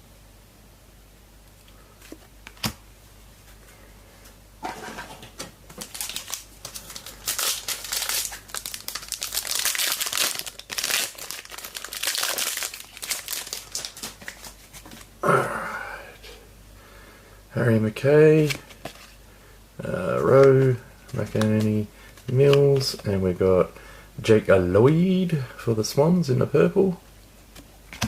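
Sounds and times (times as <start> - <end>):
foil wrapper crinkling: 5.7 - 15.1.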